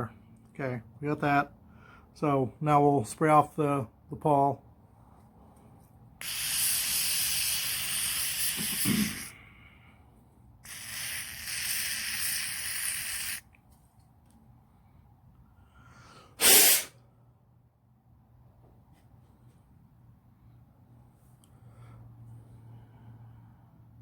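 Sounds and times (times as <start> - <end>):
aerosol can spraying: 6.2 - 9.3, 10.6 - 13.5, 16.4 - 16.9
burst of air: 6.2 - 9.8, 10.6 - 13.4, 16.3 - 17.0.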